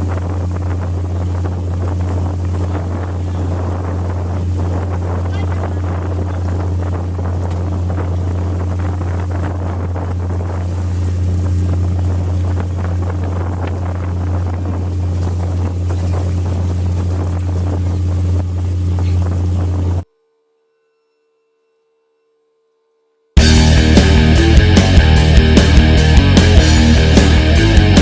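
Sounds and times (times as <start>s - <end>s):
boat diesel engine droning: 0.0s - 20.1s, 23.4s - 28.0s
wind noise on microphone: 0.0s - 20.1s.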